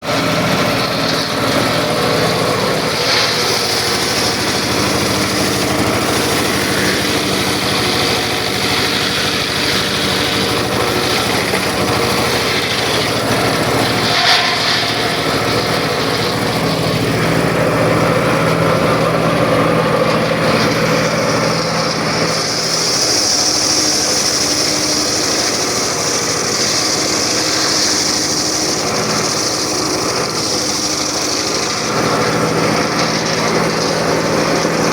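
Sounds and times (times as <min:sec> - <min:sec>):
circular saw cutting wood: 0:00.0 - 0:34.9.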